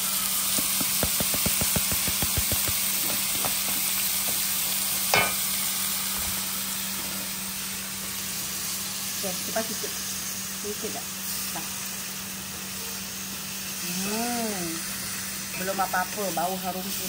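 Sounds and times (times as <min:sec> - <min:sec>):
aromatics sizzling in hot oil: 0:00.0 - 0:17.0
spatula clanking on a pan: 0:00.6 - 0:05.5.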